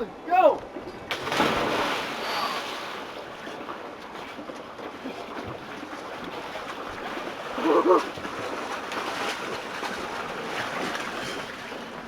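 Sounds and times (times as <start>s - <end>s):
lake water splashing: 1.1s - 12.0s.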